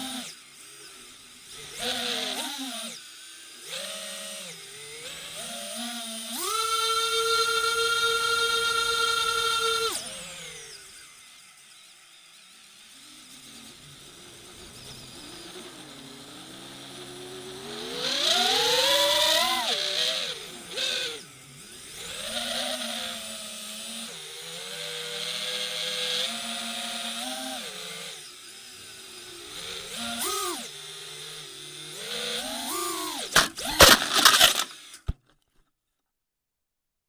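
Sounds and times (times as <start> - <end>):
drone propellers whining: 29.4 - 35.0.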